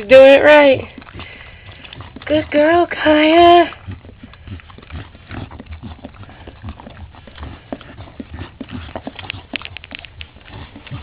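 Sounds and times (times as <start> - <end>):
dog licking puppy: 0.0 - 11.0.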